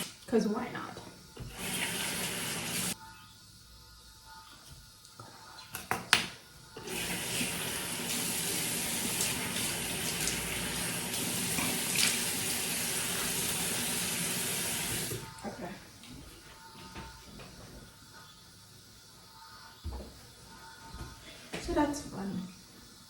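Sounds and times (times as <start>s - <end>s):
water running from a tap: 0.0s - 3.0s, 6.8s - 15.3s.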